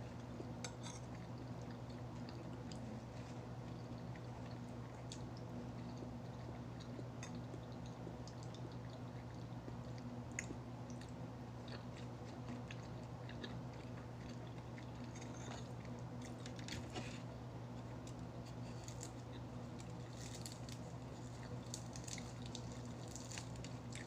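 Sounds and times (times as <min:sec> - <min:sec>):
steady low hum: 0:00.0 - 0:24.0
person chewing food: 0:00.1 - 0:24.0.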